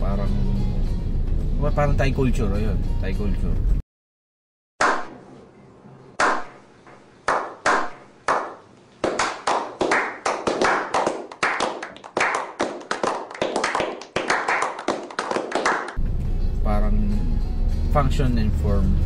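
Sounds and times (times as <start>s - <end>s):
group hand clapping: 6.2s - 6.5s, 7.3s - 16.0s.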